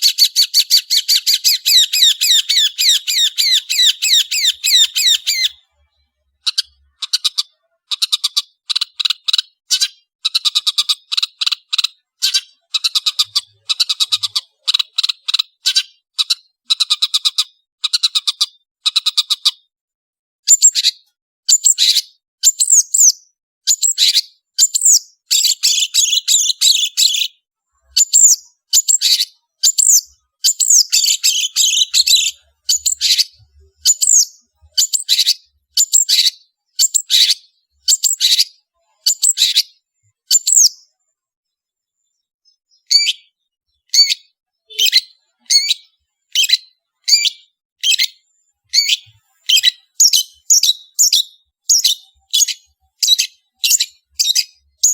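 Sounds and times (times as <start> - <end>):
shrike singing: 0.1 - 5.6, 29.8 - 35.1.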